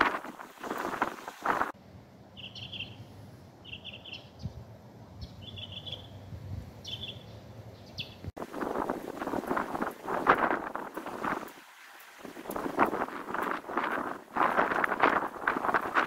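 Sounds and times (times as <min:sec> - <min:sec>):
wind on microphone: 0:00.0 - 0:01.8, 0:06.2 - 0:07.0, 0:08.3 - 0:16.0
small bird trilling: 0:02.4 - 0:03.0, 0:06.8 - 0:08.2.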